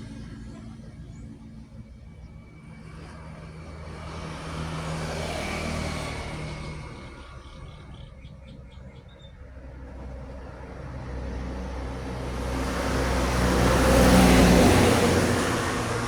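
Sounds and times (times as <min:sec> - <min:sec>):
heavy truck driving past: 0:09.4 - 0:16.0.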